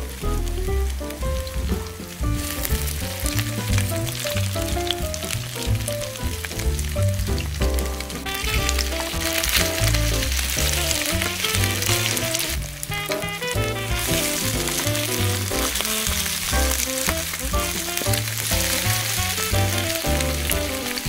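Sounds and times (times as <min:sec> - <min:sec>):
background music with bass line: 0:00.0 - 0:21.0
pancakes sizzling in hot oil: 0:14.0 - 0:21.0.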